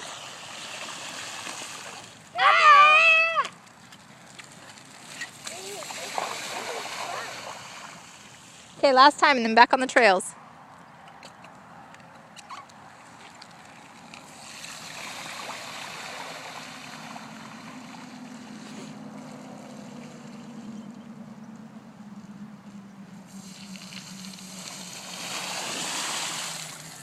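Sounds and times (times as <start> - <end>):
bicycle tyres through puddle: 0.0 - 8.8, 12.2 - 27.0
water spraying and sloshing: 0.0 - 8.8, 12.5 - 20.9, 23.3 - 27.0.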